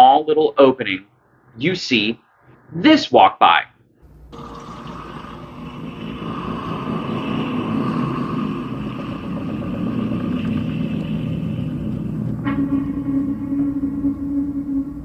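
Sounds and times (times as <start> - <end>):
boat motor running: 4.0 - 15.0.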